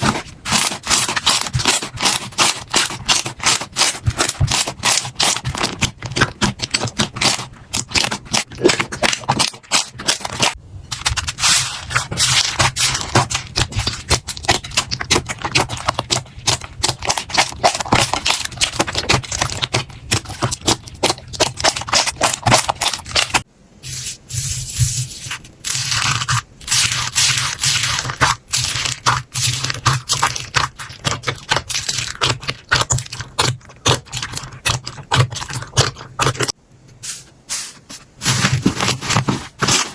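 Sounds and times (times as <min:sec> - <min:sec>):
slime crackling and popping: 0:25.6 - 0:36.5.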